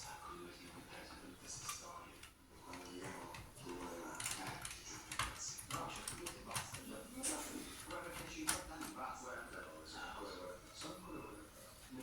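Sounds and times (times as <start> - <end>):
computer hardware parts clicking: 1.6 - 9.0.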